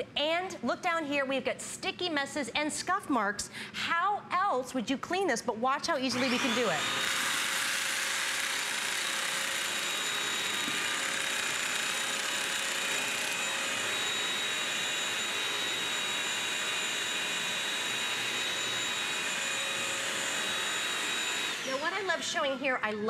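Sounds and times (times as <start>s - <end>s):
vacuum cleaner motor whine: 6.1s - 22.5s.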